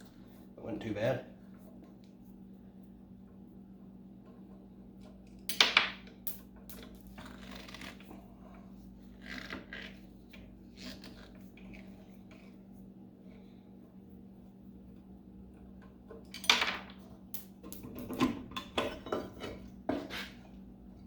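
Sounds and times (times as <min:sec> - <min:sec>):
metal parts clattering on workbench: 0:16.3 - 0:17.0, 0:17.6 - 0:20.0.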